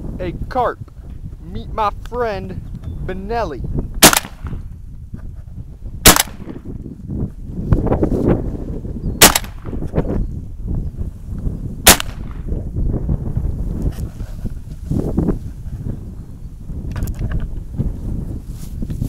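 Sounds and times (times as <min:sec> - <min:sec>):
wind rumble on microphone: 0:00.0 - 0:19.0
shotgun blasts: 0:04.0 - 0:04.6, 0:06.0 - 0:06.7, 0:09.2 - 0:09.8, 0:11.8 - 0:12.5.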